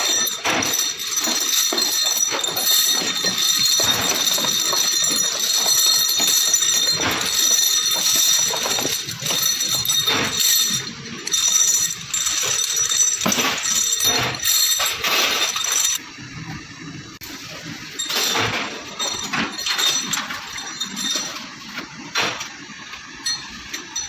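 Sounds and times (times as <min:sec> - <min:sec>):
metal parts clinking: 0:00.0 - 0:16.0, 0:18.0 - 0:22.6.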